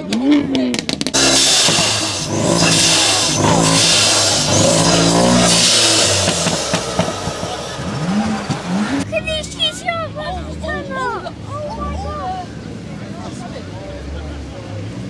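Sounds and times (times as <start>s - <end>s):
car engine revving loudly: 1.2s - 9.1s.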